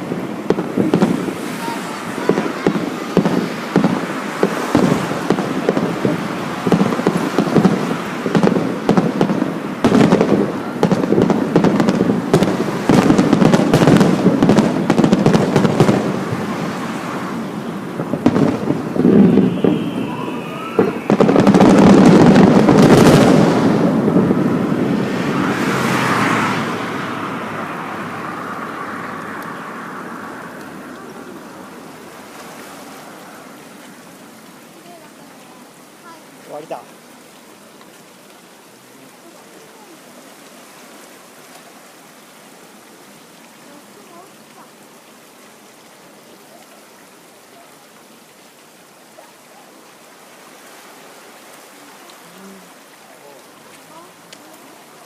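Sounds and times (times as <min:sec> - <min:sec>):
fireworks crackle: 0:00.0 - 0:27.0
fireworks bursting: 0:00.0 - 0:32.3
rumbling echo: 0:02.0 - 0:25.5
firework whistle: 0:18.1 - 0:23.9.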